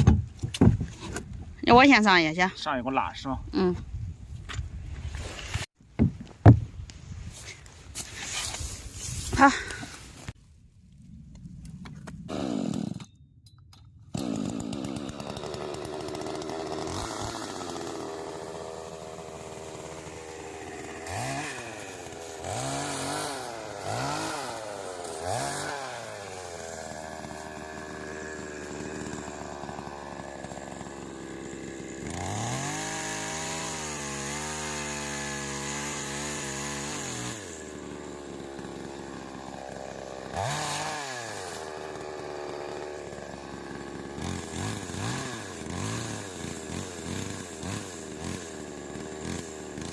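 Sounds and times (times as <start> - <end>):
power tool motor whining: 14.1 - 49.9.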